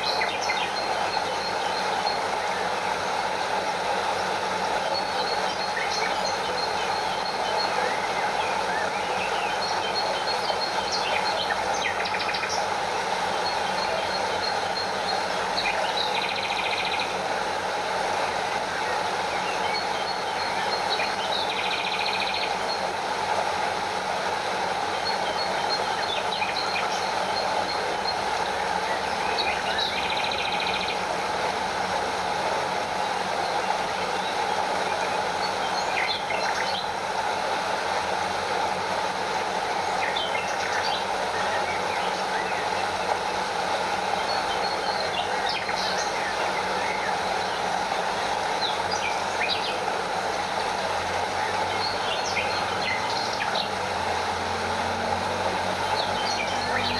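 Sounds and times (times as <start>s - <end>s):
bird chirps and buzzy calls: 0.0s - 2.9s, 4.9s - 17.4s, 19.0s - 23.0s, 24.9s - 31.2s, 33.0s - 37.1s, 39.7s - 56.9s
water rushing over waterfall: 31.2s - 56.9s.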